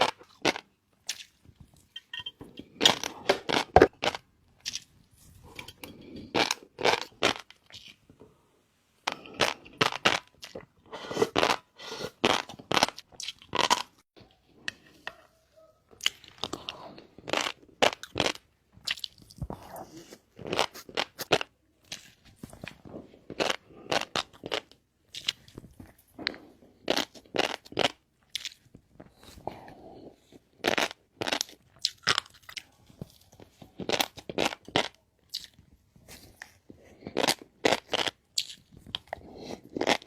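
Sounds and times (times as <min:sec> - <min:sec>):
chewing with sharp crunches: 0:30.2 - 0:40.0.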